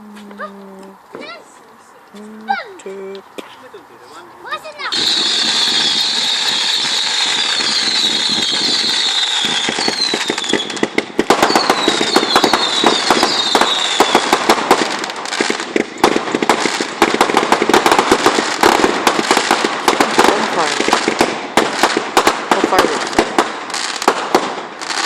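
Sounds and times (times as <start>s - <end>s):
fireworks hissing: 3.6s - 25.0s
crackling firework pops: 4.8s - 25.0s
falling firework whistles: 4.9s - 14.6s.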